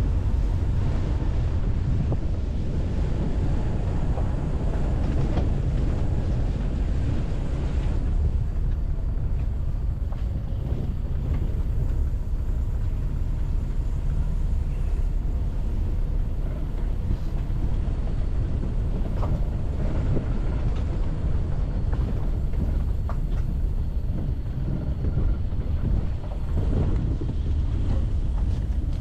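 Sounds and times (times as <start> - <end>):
moving vehicle droning: 0.0 - 29.0
wind rumbling on microphone: 0.0 - 29.0.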